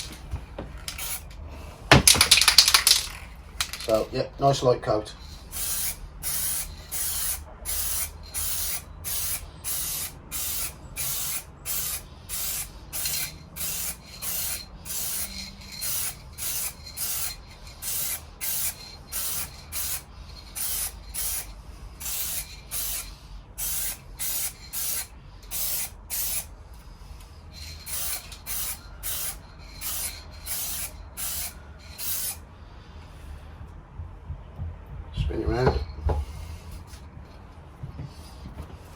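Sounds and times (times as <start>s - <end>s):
spray paint hissing bursts: 0.0s - 0.2s, 0.9s - 1.2s, 5.3s - 26.5s, 27.5s - 32.4s.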